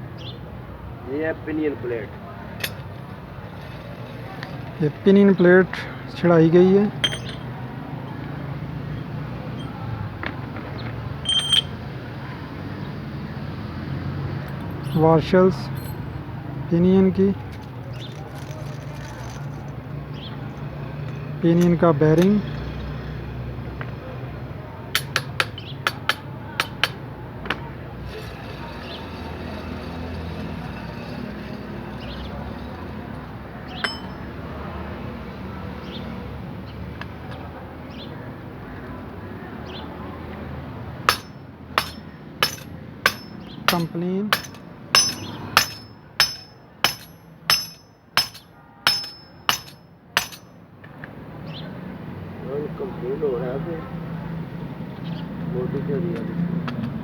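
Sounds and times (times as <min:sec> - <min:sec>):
metal-on-metal taps: 0:02.6 - 0:03.0, 0:07.0 - 0:07.5, 0:09.6 - 0:11.8, 0:25.0 - 0:28.5, 0:33.8 - 0:34.2, 0:41.1 - 0:50.5
metal parts clinking: 0:02.6 - 0:04.8, 0:07.0 - 0:08.3, 0:11.2 - 0:11.8, 0:14.5 - 0:16.0, 0:17.4 - 0:19.9, 0:33.0 - 0:34.3, 0:41.1 - 0:50.5
high ringing note: 0:11.3 - 0:11.8.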